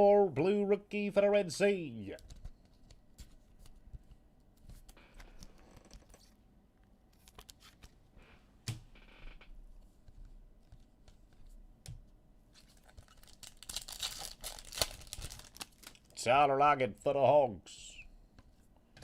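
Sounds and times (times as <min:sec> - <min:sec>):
cards rustling: 0:12.6 - 0:16.2.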